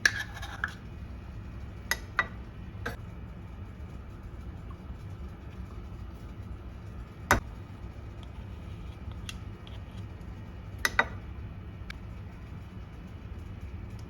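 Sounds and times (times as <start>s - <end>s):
steady low hum: 0.0s - 14.0s
dishes clicking and knocking: 10.8s - 11.2s.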